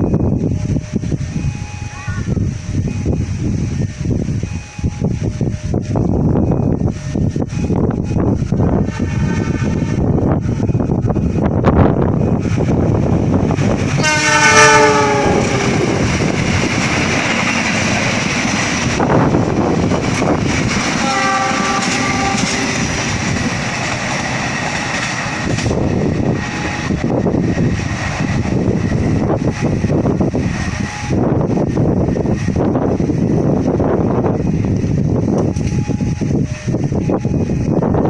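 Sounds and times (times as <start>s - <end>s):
train rumble and clatter on rails: 0.0s - 38.0s
train horn: 14.0s - 16.1s, 21.0s - 23.1s.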